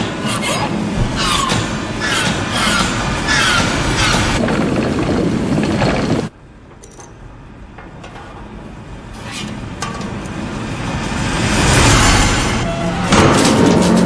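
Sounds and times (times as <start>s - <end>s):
mechanical rumble: 0.0s - 14.0s.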